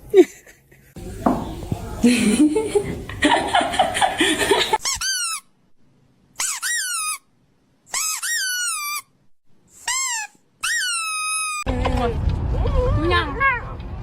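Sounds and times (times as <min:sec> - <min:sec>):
small pet squeaky calls: 0:04.8 - 0:05.5, 0:06.4 - 0:07.3, 0:07.9 - 0:09.1, 0:09.8 - 0:11.7.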